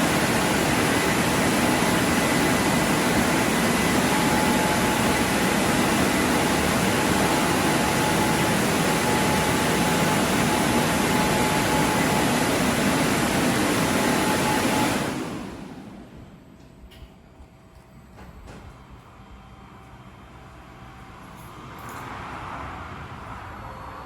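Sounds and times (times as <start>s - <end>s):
car wash air blowers: 0.0s - 16.2s.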